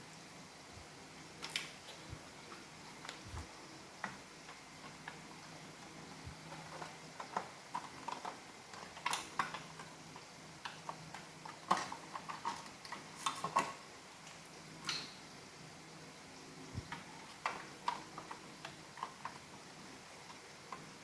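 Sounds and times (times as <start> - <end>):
plastic parts clicking and tapping: 4.0 - 15.1, 16.9 - 19.6.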